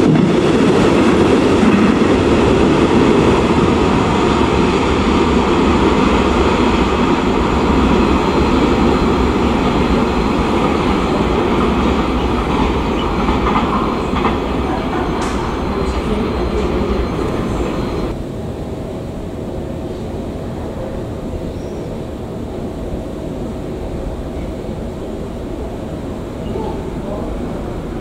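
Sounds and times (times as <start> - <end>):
distant train: 0.0 - 28.0
freight train rumbling on rails: 0.0 - 28.0.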